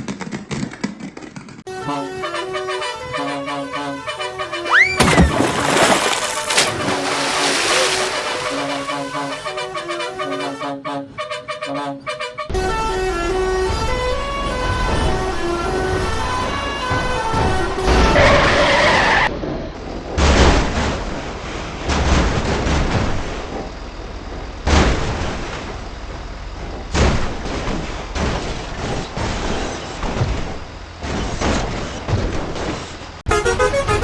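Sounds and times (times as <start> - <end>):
rumbling vehicle: 4.4 - 10.2, 12.5 - 33.2
sudden loud impact bursts: 4.7 - 9.8.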